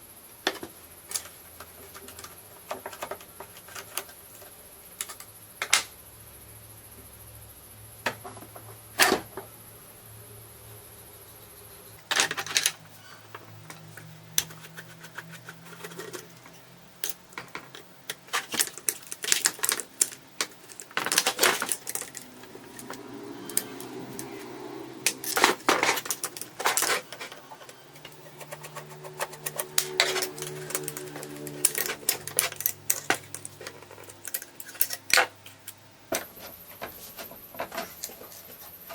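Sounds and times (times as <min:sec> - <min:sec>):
metal hand tools clinking: 0:28.4 - 0:35.7.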